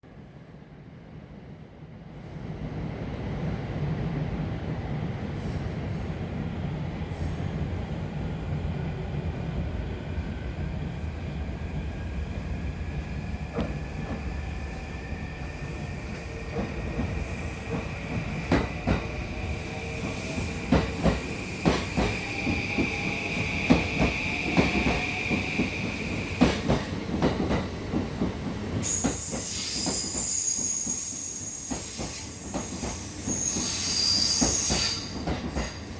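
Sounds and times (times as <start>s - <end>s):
wheel or brake squeal: 28.9s - 35.2s.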